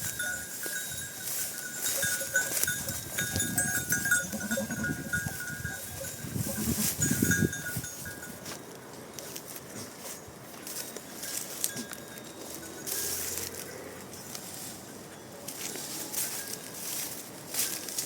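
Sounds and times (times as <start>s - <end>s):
metallic bell ringing: 0.0s - 8.5s, 10.7s - 13.5s
goats and sheep bleating: 3.4s - 7.3s.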